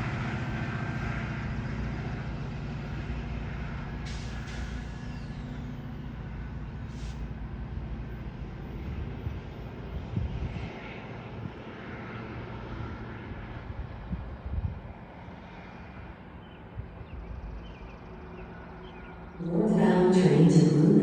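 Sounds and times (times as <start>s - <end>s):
diesel train engine drone: 0.0s - 21.0s.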